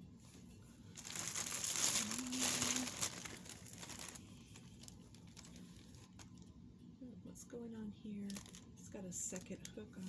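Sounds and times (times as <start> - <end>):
plastic bag crinkling: 0.8 - 6.6, 8.2 - 10.0.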